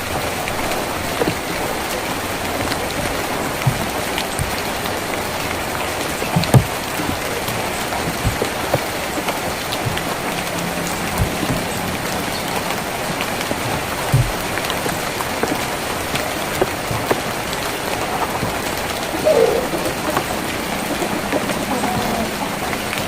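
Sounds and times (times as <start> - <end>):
rain on a tin roof: 0.0 - 23.0
low knocks: 6.3 - 21.0.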